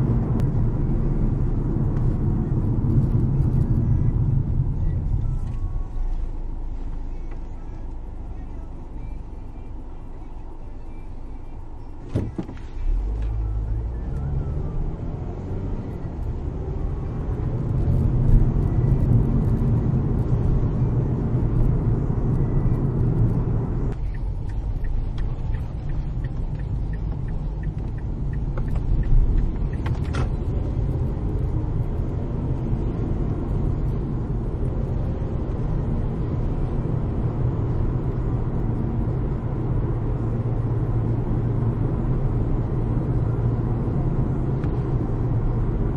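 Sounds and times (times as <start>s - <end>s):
car engine and road noise: 0.0s - 45.9s.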